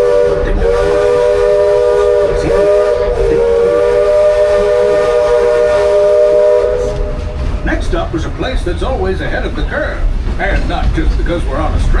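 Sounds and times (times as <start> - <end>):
steam locomotive chime whistle: 0.0 - 7.4.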